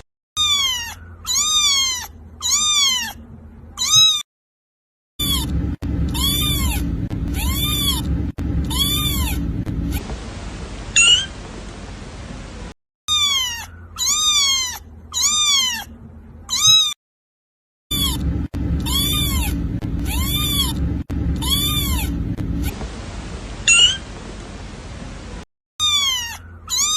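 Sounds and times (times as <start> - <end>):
kitten meowing: 0.4 - 3.2, 3.8 - 4.2, 5.2 - 10.0, 11.0 - 11.3, 13.1 - 15.9, 16.5 - 17.0, 17.9 - 22.7, 23.7 - 24.0, 25.8 - 26.9
steady low hum: 5.2 - 12.8, 17.9 - 25.4.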